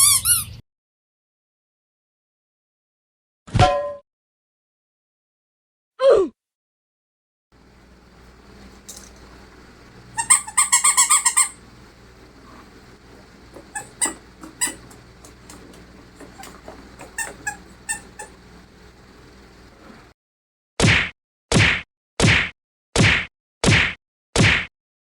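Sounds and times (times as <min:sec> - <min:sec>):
plastic squeaks: 0:07.6 - 0:20.0.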